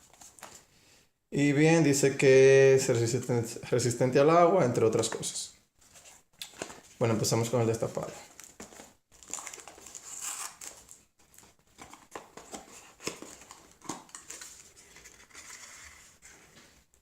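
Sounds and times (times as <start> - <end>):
packaging rustling and crinkling: 5.8 - 16.7.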